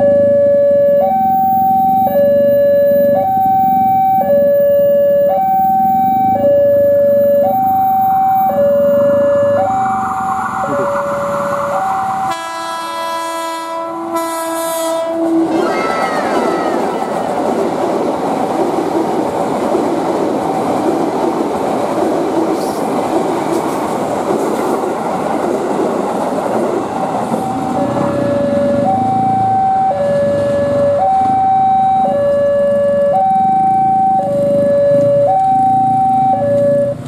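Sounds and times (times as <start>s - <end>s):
two-tone crossing alarm: 0.0s - 17.3s, 27.3s - 37.0s
electric train running: 15.2s - 29.5s.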